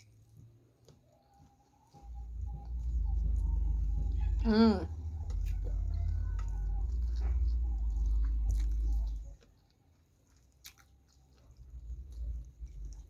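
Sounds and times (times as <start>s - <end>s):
chewing food: 0.0s - 13.0s
heavy low rumble: 2.0s - 9.4s, 11.5s - 13.0s.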